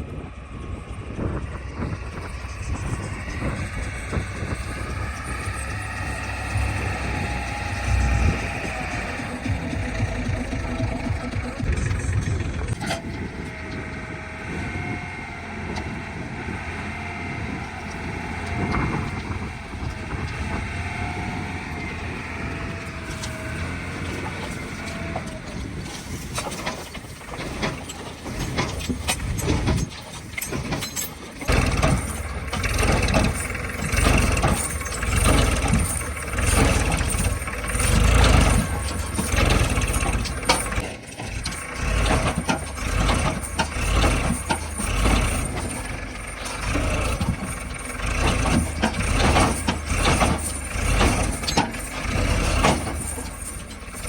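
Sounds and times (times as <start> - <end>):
backhoe loader engine whining: 0.0 - 54.0
low surges and knocks: 0.2 - 14.8.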